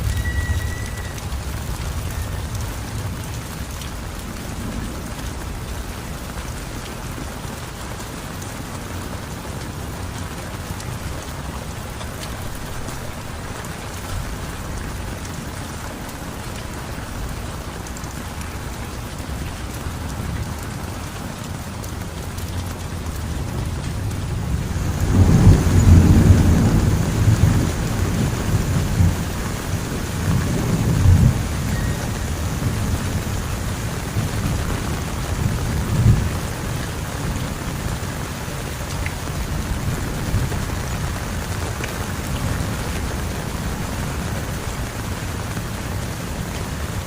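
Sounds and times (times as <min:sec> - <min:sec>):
heavy rain: 0:00.0 - 0:47.0
thunder rolling: 0:22.7 - 0:36.4.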